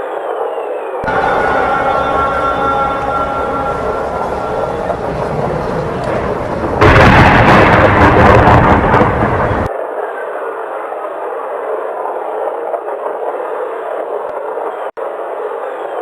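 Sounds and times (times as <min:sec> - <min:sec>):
loud thunderclap: 0:01.0 - 0:09.7
rain hissing: 0:01.0 - 0:09.7.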